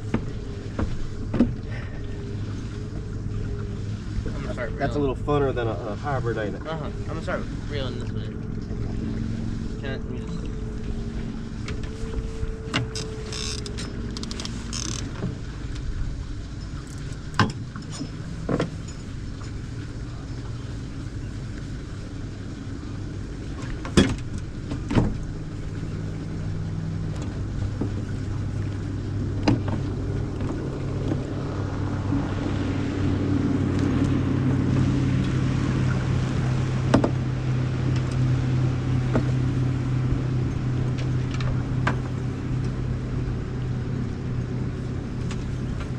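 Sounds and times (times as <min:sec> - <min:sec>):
boat motor humming: 0:00.0 - 0:45.9.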